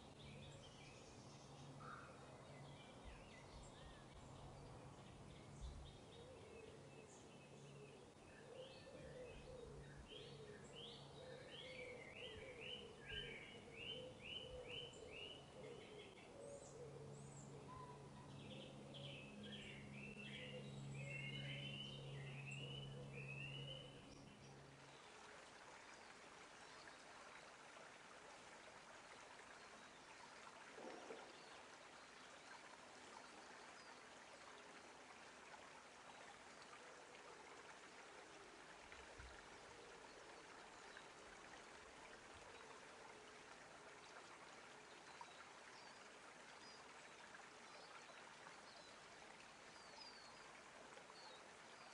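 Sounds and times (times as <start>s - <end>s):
low steady hum: 0.0s - 51.9s
songbird warbling: 7.7s - 24.2s
running water: 17.1s - 51.9s.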